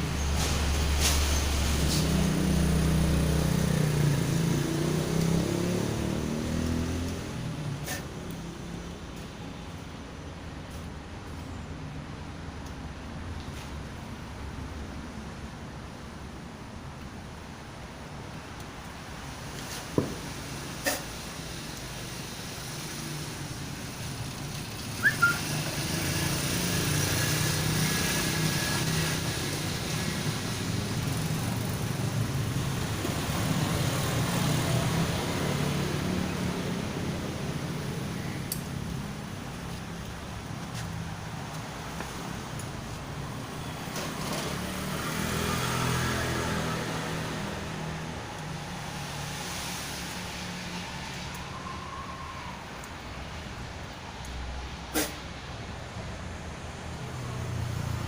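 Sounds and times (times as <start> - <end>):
motor vehicle passing by: 0.0 - 9.2, 19.3 - 55.3, 56.4 - 58.0
short high chirp: 25.0 - 25.5.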